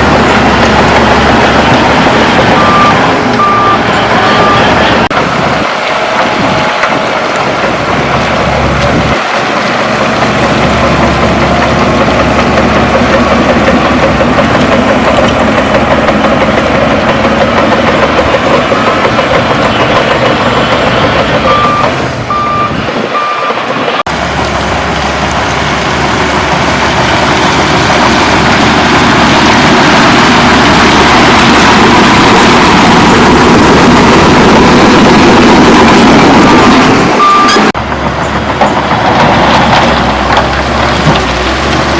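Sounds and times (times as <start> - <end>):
bulldozer diesel engine: 0.0 - 41.9
reversing alarm beeps: 2.6 - 4.9, 21.4 - 23.6, 37.2 - 37.7.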